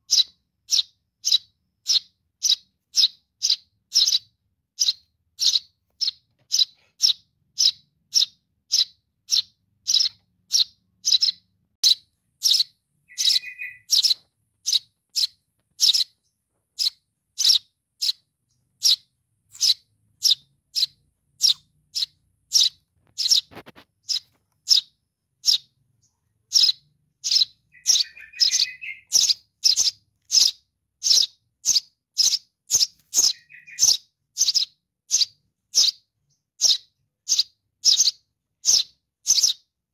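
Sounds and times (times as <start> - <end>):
bird chick chirping: 0.0 - 39.7
low buzzy bird call: 12.4 - 16.1, 26.5 - 35.9.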